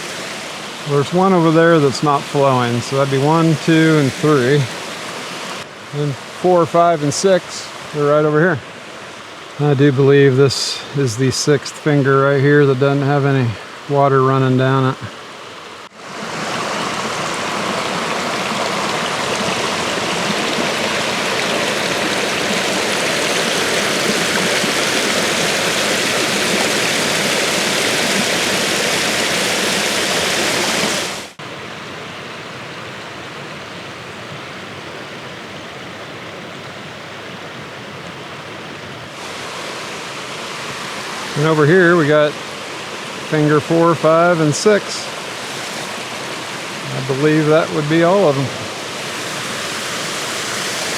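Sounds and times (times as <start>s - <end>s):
waterfall splashing on rock: 16.0s - 31.4s.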